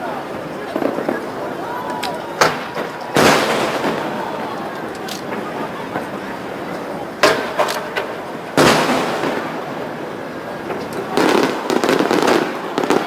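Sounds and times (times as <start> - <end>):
fireworks bursting: 0.0 - 13.0
firework boom rumbling: 2.4 - 6.1, 7.2 - 13.0.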